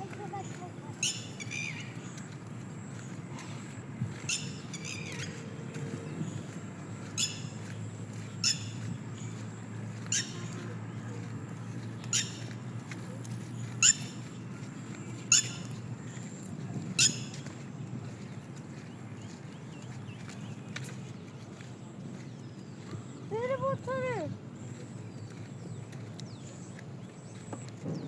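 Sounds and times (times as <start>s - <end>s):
bird squawking: 0.4s - 2.1s, 4.2s - 5.4s, 7.2s - 7.5s, 8.4s - 8.8s, 10.0s - 10.8s, 12.1s - 12.6s, 13.8s - 14.2s, 15.3s - 15.8s, 17.0s - 17.4s.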